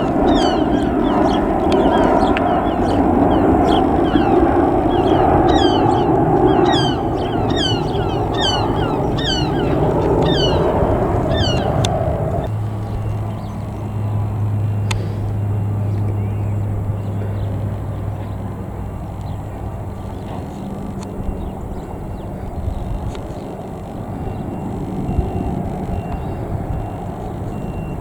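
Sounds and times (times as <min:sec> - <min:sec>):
bird calling with downward notes: 0:00.0 - 0:15.1
steady low hum: 0:00.0 - 0:21.8
distant jet engines rumbling: 0:00.0 - 0:28.0.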